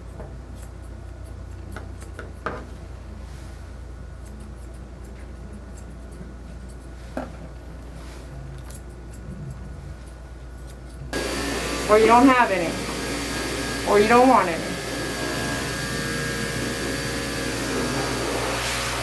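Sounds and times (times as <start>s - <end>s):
steady low hum: 0.0s - 19.0s
shears snipping: 4.2s - 8.0s.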